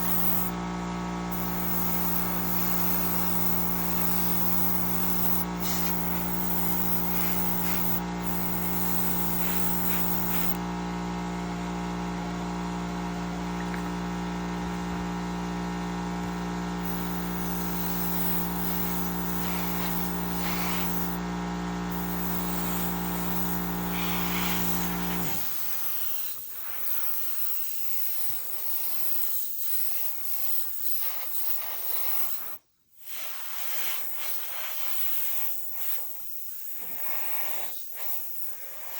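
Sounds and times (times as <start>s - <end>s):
air and spray hissing: 0.0s - 0.6s, 1.3s - 10.6s, 16.8s - 21.2s, 21.9s - 38.9s
airbrush compressor humming: 0.0s - 32.4s.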